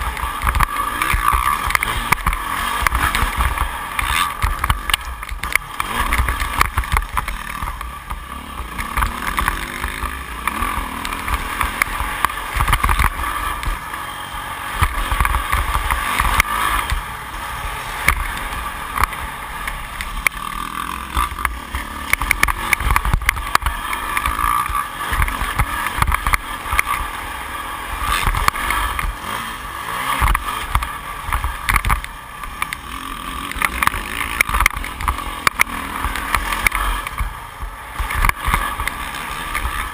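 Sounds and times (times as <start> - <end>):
muffled motocross engine revving: 0.0 - 39.9
low thumps from wind and bumps: 33.5 - 39.9.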